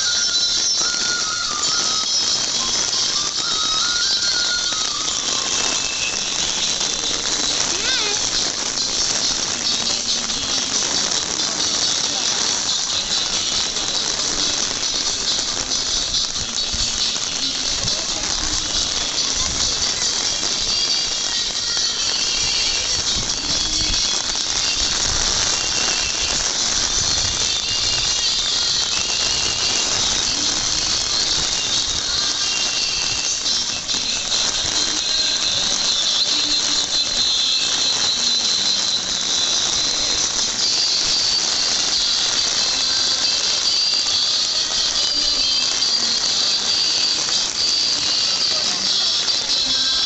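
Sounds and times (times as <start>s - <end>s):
heavy rain on paving: 0.0s - 50.0s.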